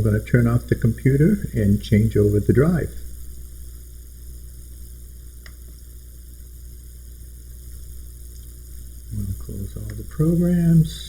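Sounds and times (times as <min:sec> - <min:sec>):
faint hiss: 0:00.0 - 0:11.0
low electrical hum: 0:00.0 - 0:11.0
faint click: 0:05.4 - 0:05.8, 0:09.8 - 0:10.0.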